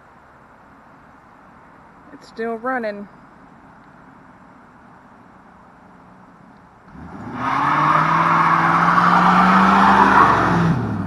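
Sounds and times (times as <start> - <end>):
car engine revving: 6.9 - 11.0.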